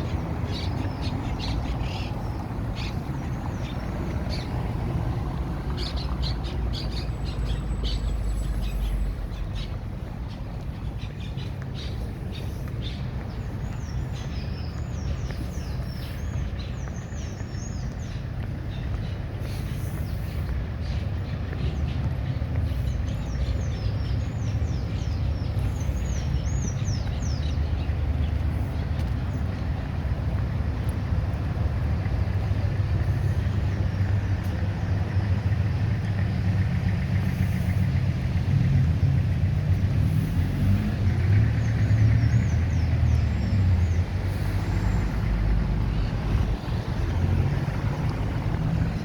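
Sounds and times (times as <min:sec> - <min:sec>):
road vehicles passing: 0:00.0 - 0:49.0.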